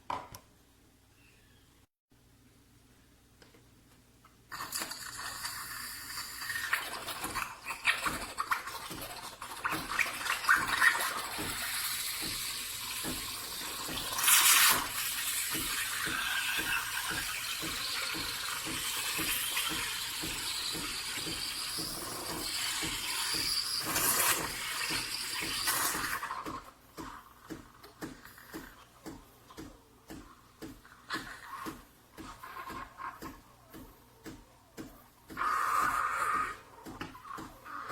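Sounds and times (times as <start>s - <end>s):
water hissing: 5.1s - 26.5s
espresso machine pump buzzing: 9.9s - 26.6s.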